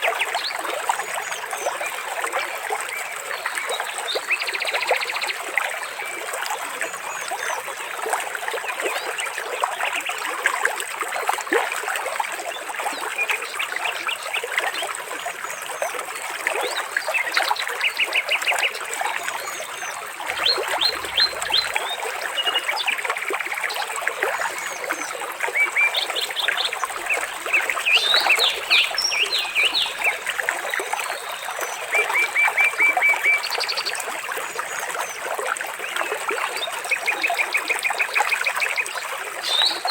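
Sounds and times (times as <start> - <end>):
trickling water: 0.0 - 39.9
birds chirping and singing: 20.3 - 22.0, 27.0 - 30.3, 39.4 - 39.9.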